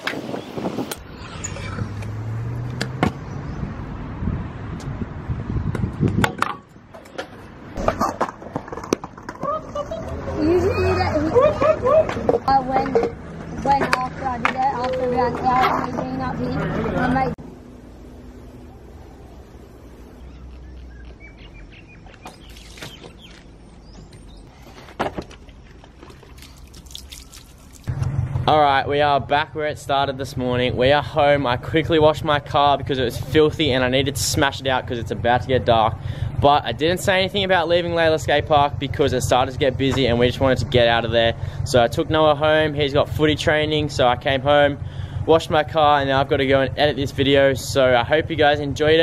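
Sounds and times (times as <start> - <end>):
birds chirping: 0.2 - 4.0, 12.5 - 24.7, 25.5 - 27.8
vehicle passing: 1.0 - 6.1, 8.4 - 24.4
sharp knocks and clatter: 5.7 - 9.4
low outdoor hum: 6.5 - 49.0.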